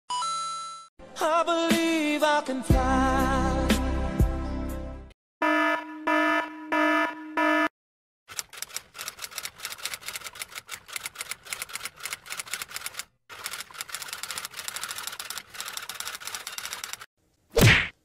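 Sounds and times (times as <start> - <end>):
electronic alarm beeps: 5.4 - 7.7
typewriter keys clattering: 8.3 - 17.1.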